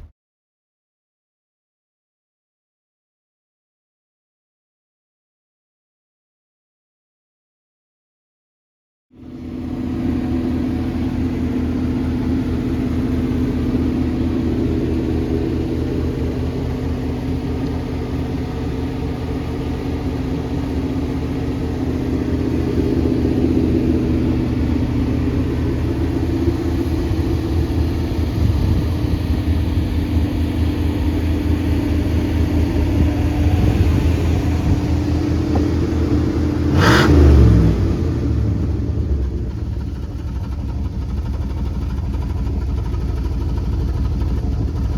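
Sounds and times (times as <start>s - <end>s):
car engine droning: 9.2s - 44.9s.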